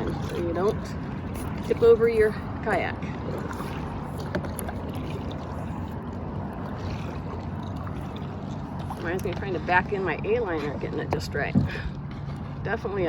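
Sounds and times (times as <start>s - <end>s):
kayak paddle strokes: 0.0s - 12.8s
water lapping at hull: 0.0s - 13.0s.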